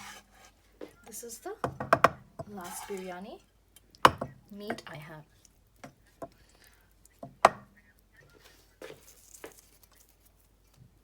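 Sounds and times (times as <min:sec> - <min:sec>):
spoon knocking against pot: 0:01.6 - 0:02.6, 0:04.0 - 0:04.9.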